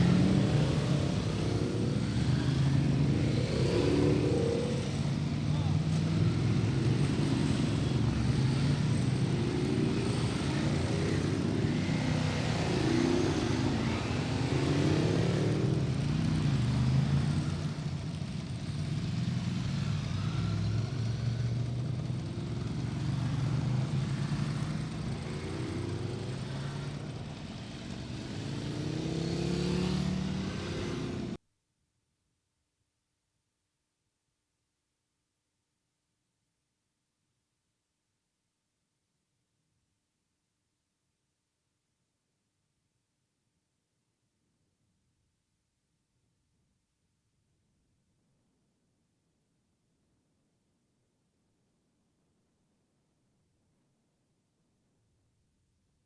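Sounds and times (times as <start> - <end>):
motorcycles revving: 0.0 - 31.4.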